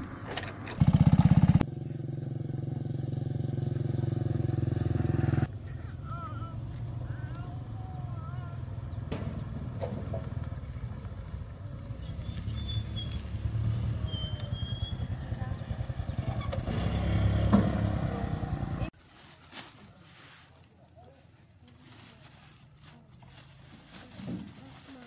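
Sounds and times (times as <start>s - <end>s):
vehicle engine running: 0.6s - 19.0s
high chirps or squeals: 11.9s - 16.7s.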